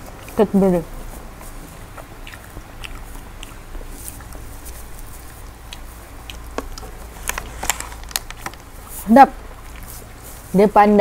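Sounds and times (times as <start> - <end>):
chewing with wet mouth sounds: 0.0 - 11.0
mouth clicks: 1.4 - 7.4.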